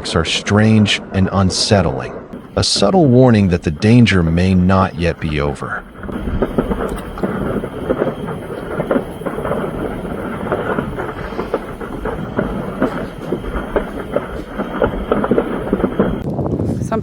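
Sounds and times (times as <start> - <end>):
low rumble: 0.0 - 16.2
fire crackling and popping: 0.0 - 16.5.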